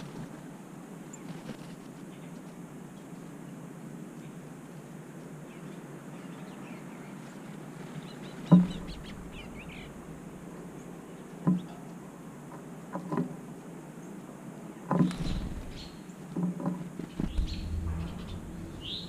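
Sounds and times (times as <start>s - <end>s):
small birds chirping: 5.5s - 12.0s, 14.9s - 16.2s, 17.0s - 19.0s
steady low hum: 8.6s - 10.9s, 15.2s - 16.0s, 17.1s - 19.0s.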